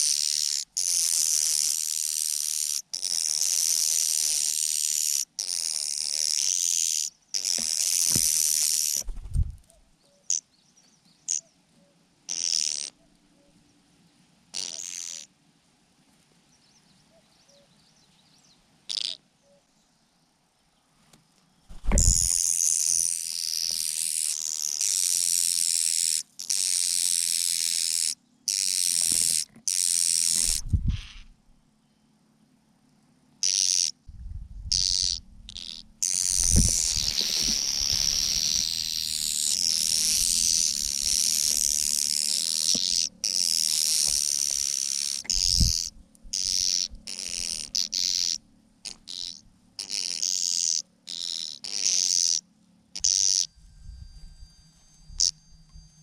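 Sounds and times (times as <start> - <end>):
low thuds: 21.7 - 22.3
shrill hissing bird calls: 34.7 - 52.4.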